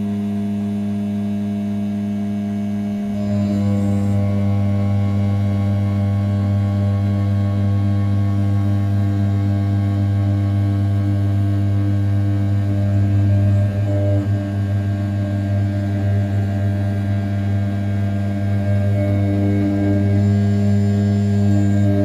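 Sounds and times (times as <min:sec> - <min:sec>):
milling spindle hum: 0:01.9 - 0:22.0.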